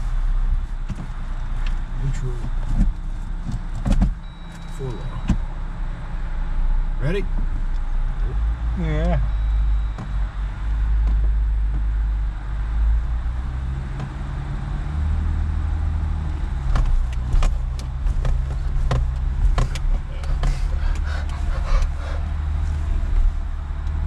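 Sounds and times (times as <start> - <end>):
off-road vehicle engine: 0.0 - 24.0
vehicle knocks and rattles: 1.8 - 5.5, 16.1 - 24.0.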